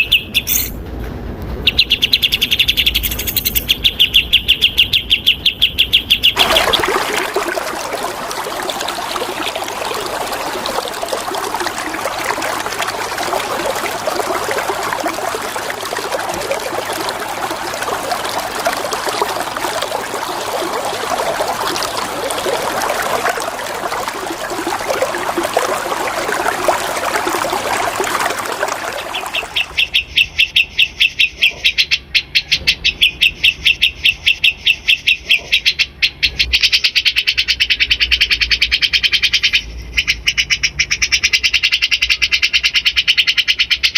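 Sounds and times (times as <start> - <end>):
water rushing: 6.4 - 29.8.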